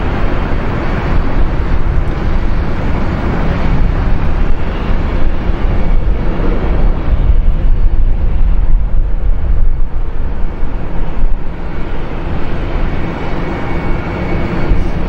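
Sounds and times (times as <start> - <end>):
jet airliner engine noise: 0.0 - 15.0.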